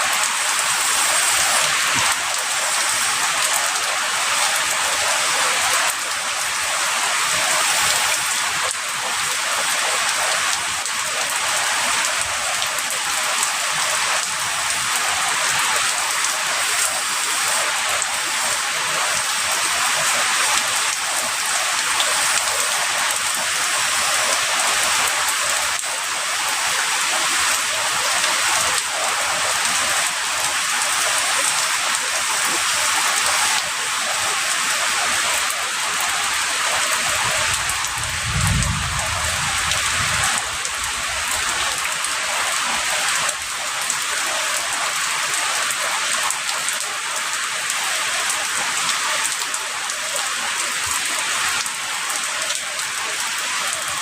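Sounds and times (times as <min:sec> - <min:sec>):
heavy rain falling: 0:00.0 - 0:54.0
distant thunder rumble: 0:37.7 - 0:40.5.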